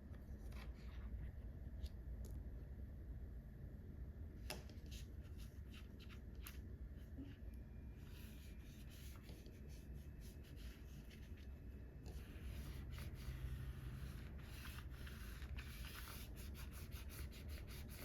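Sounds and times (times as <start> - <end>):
scratchy scraping on paper: 12.1 - 18.0.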